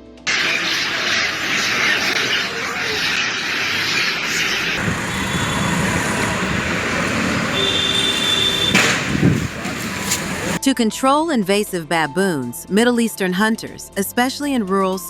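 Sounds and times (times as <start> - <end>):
road traffic noise: 0.3 - 10.6.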